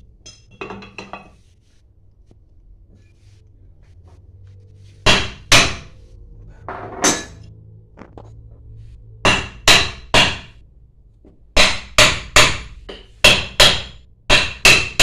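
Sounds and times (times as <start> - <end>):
hammer striking metal: 5.0 - 6.0, 6.7 - 7.5, 9.2 - 10.6, 11.6 - 15.0.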